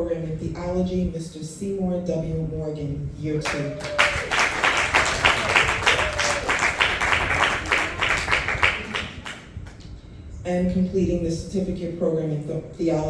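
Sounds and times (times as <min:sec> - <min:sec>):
crowd applauding: 0:03.4 - 0:09.8.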